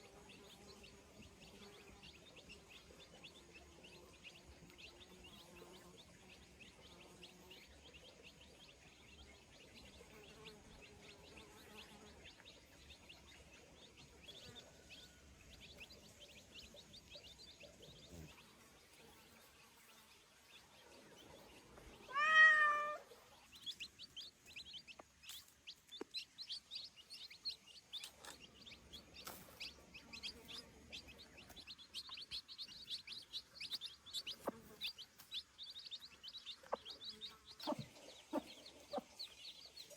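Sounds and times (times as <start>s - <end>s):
small birds chirping: 0.0s - 39.9s
cat meowing: 22.1s - 23.1s.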